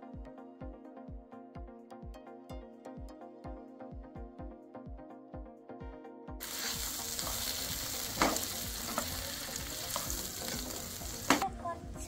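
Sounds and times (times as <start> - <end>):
food sizzling in a pan: 6.4 - 11.4.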